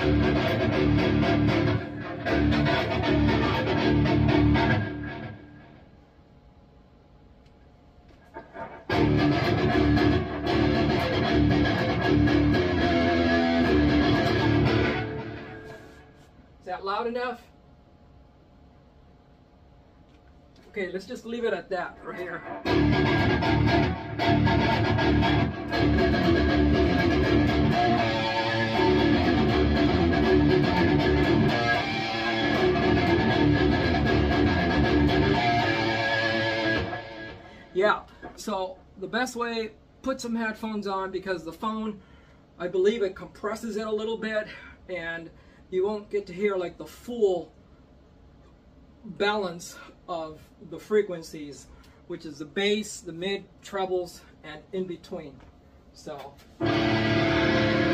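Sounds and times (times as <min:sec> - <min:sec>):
distorted electric guitar chugs: 0:00.0 - 0:05.8, 0:08.3 - 0:16.1, 0:22.1 - 0:37.8, 0:56.6 - 0:57.9
faint picked guitar notes: 0:22.6 - 0:37.5, 0:56.6 - 0:57.9.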